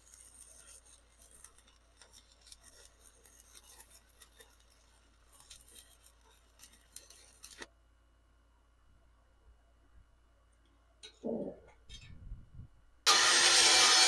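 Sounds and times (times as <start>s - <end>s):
welding arc crackling: 0.0s - 7.7s, 13.1s - 14.0s.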